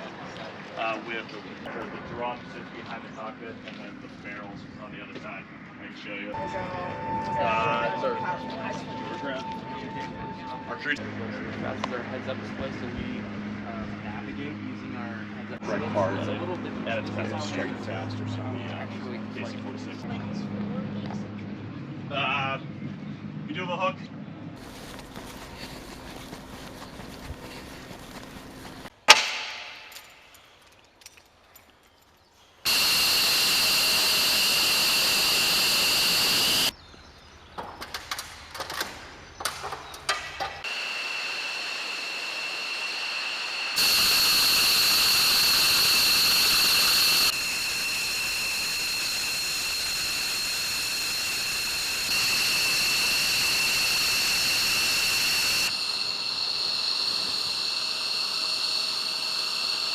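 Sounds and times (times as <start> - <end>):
sharp knock: 29.1 - 29.9
jet engine hiss and whine: 32.7 - 36.7, 40.6 - 59.9.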